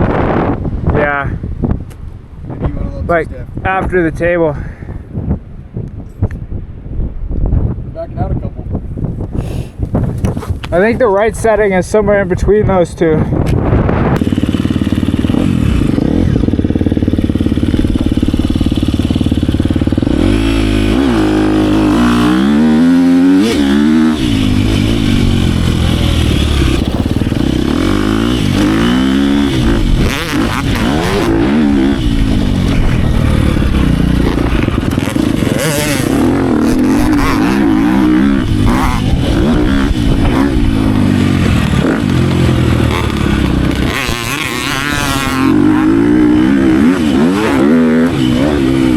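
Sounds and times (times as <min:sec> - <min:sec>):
dirt bike engine revving: 0:14.1 - 0:48.9.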